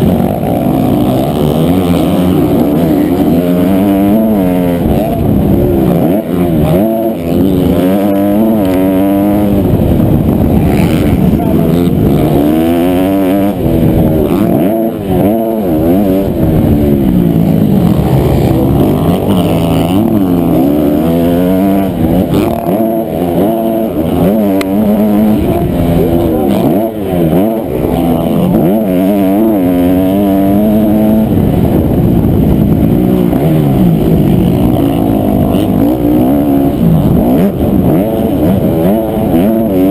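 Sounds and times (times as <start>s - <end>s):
motocross engine revving: 0.0s - 39.9s.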